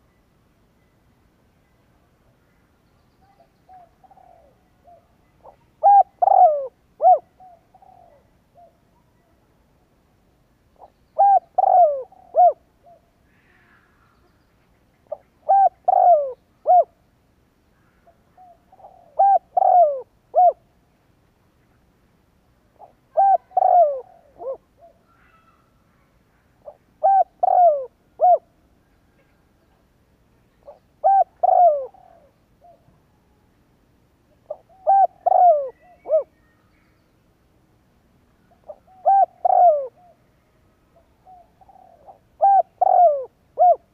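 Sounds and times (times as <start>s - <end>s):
dove cooing: 3.3s - 8.9s, 10.8s - 13.1s, 15.0s - 17.0s, 18.0s - 20.7s, 22.8s - 25.6s, 26.6s - 28.5s, 30.6s - 33.0s, 34.4s - 36.4s, 38.5s - 40.3s, 41.0s - 43.9s.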